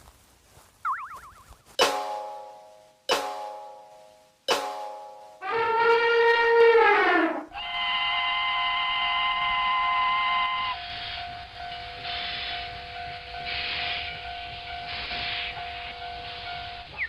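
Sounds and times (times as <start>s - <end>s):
steam locomotive whistle: 4.6s - 12.8s
hissing steam puffs: 7.1s - 17.0s.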